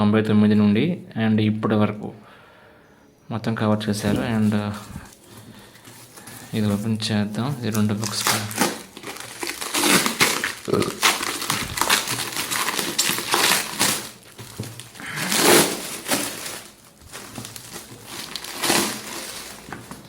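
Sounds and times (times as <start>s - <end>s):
packaging crinkling and rustling: 4.0s - 20.0s.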